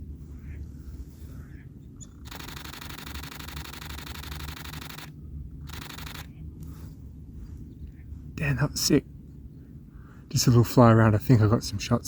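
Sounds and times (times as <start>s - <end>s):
low background rumble: 0.0s - 12.0s
camera shutter burst: 2.2s - 6.3s.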